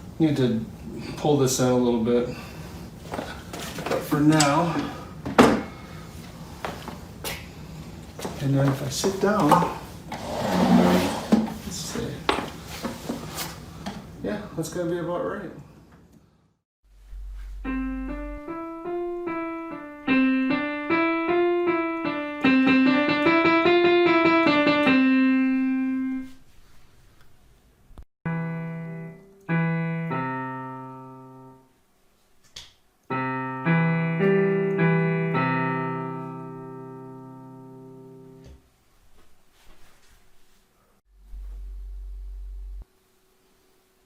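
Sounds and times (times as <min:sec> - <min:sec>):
piano notes and chords: 0:17.0 - 0:26.4, 0:28.3 - 0:31.7, 0:33.1 - 0:38.6.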